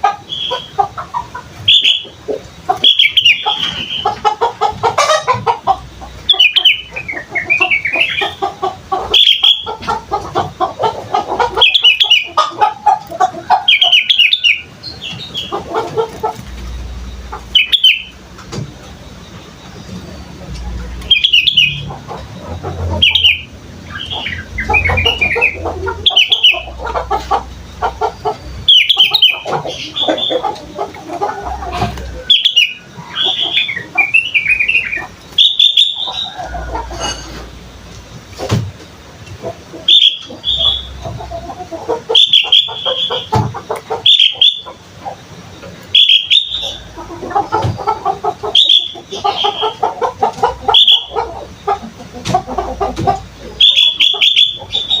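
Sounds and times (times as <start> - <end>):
bird chattering notes: 0.0 - 37.9, 39.3 - 55.0
bird high chirps: 0.2 - 10.0, 10.9 - 18.2, 18.8 - 37.2, 39.9 - 41.4, 42.1 - 44.8, 45.5 - 49.9, 50.5 - 51.8, 53.4 - 55.0.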